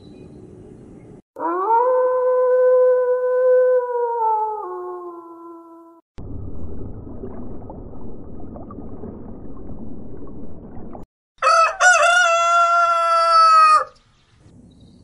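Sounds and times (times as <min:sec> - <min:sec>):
underwater rushing water: 0:06.2 - 0:11.1
rooster crowing: 0:11.4 - 0:14.0.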